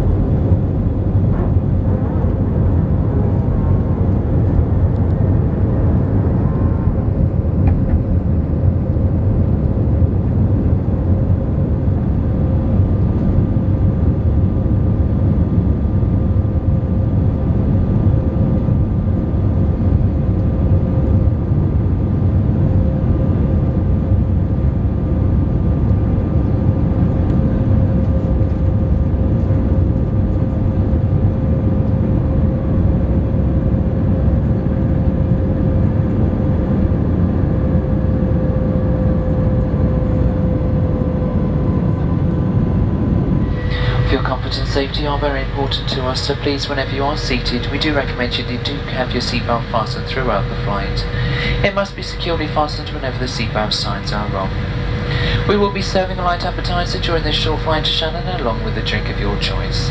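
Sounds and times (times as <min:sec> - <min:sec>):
jet engine cabin rumble: 0:00.0 - 0:59.9
thin constant whine: 0:43.2 - 0:59.9.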